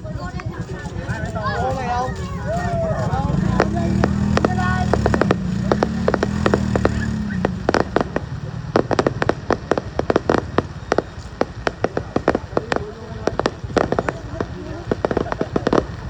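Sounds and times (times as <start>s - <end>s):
fireworks banging: 0.0s - 16.0s.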